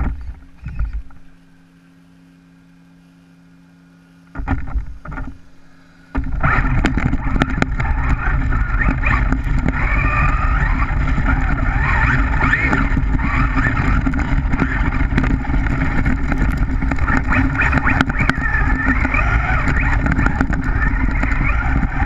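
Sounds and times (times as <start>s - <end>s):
electric motor whining: 0.0s - 22.0s
tyres churning through snow: 6.3s - 22.0s.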